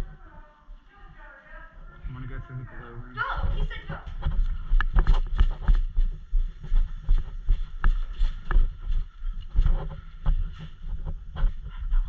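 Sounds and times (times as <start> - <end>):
heavy running footsteps: 3.3 - 12.0.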